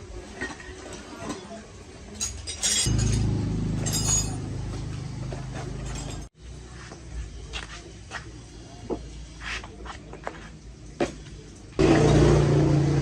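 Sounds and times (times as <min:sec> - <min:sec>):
lawn mower engine running: 0:02.9 - 0:06.3, 0:11.8 - 0:13.0.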